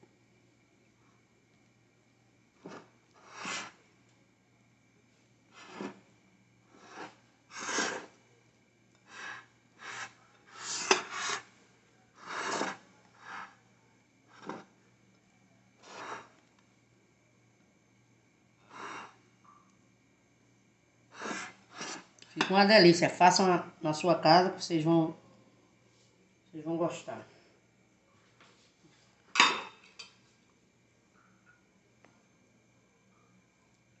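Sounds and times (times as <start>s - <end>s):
utensil scraping a dish: 2.6s - 3.8s, 5.5s - 6.1s, 6.7s - 8.1s, 9.1s - 11.5s, 12.2s - 13.6s, 14.3s - 14.8s, 15.8s - 16.3s, 21.2s - 22.6s.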